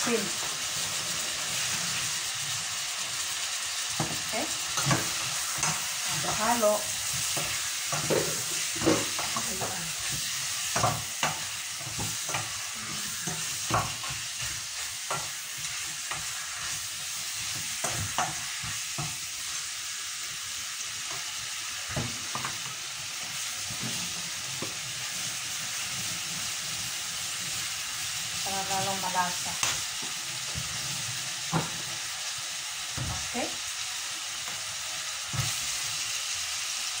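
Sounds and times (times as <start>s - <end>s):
frying sizzle: 0.0s - 37.0s
wooden spoon knocking and scraping pan: 4.0s - 19.2s, 21.9s - 22.7s, 28.7s - 31.9s.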